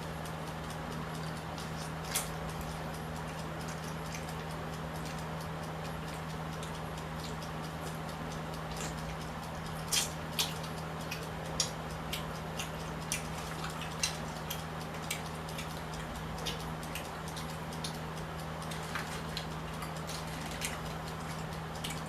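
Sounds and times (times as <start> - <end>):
steady low hum: 0.0 - 22.0
chewing clicks and smacks: 0.2 - 22.0.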